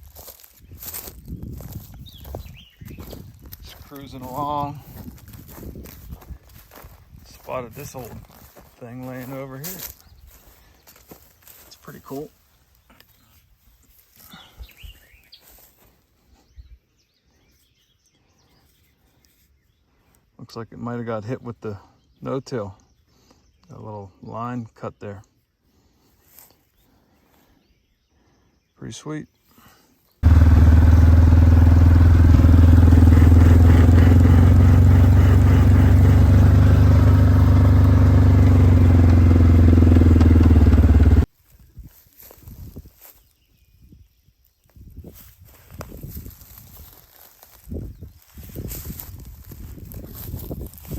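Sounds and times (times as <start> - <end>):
faint bird chirps: 1.7 - 3.5, 12.1 - 20.2
vehicle engine running: 30.2 - 41.3.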